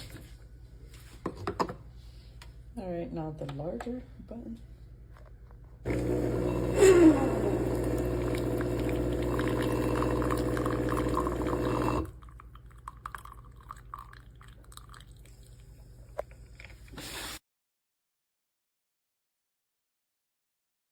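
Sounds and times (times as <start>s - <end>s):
espresso machine pump humming: 5.9s - 12.2s
coffee pouring into cup: 5.9s - 15.8s.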